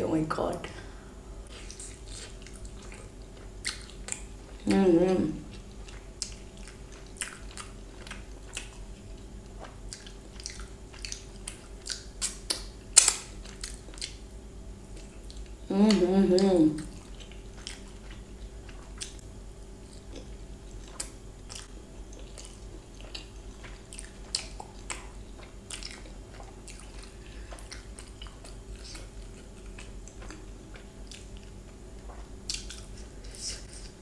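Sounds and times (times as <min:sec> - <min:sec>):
wet chewing: 0:01.5 - 0:04.6, 0:05.4 - 0:14.2, 0:14.8 - 0:19.2, 0:19.8 - 0:34.0
mouth clicks and smacks: 0:09.9 - 0:14.2.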